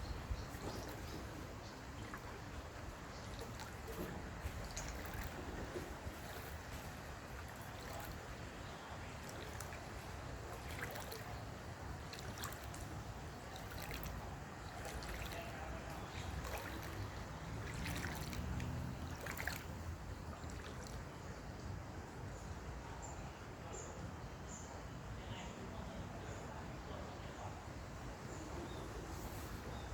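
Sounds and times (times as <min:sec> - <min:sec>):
small water splashes: 0:00.0 - 0:21.7.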